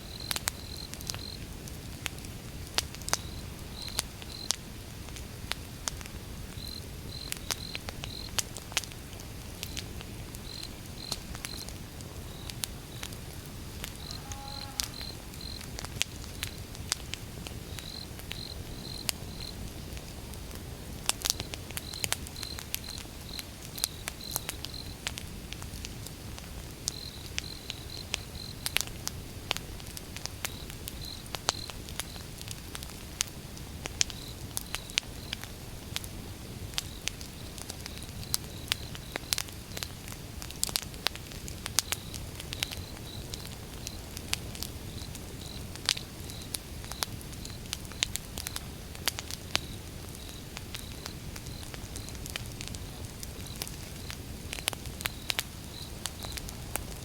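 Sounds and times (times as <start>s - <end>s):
crickets chirping: 0.0s - 1.4s, 6.6s - 8.4s, 9.7s - 16.7s, 17.7s - 20.0s, 44.8s - 48.8s, 49.6s - 56.7s
low rumble of burning logs: 0.0s - 57.0s
wood fire crackling: 0.0s - 57.0s.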